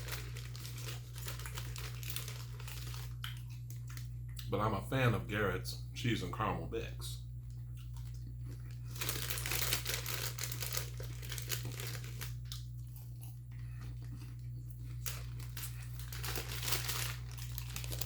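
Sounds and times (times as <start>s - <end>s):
popcorn bag crinkling and rustling: 0.0s - 4.0s, 7.8s - 18.0s.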